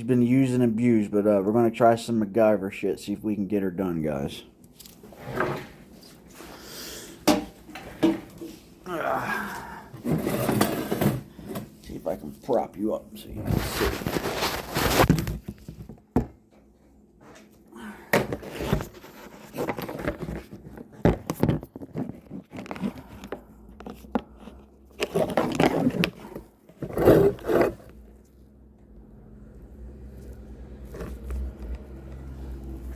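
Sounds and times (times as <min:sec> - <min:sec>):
scraping and rustling handling: 0:10.0 - 0:17.6, 0:18.2 - 0:28.4, 0:30.1 - 0:32.9.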